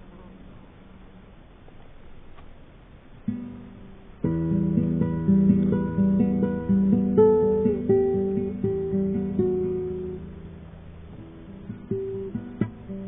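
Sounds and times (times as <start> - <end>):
acoustic guitar picking: 3.2 - 13.0.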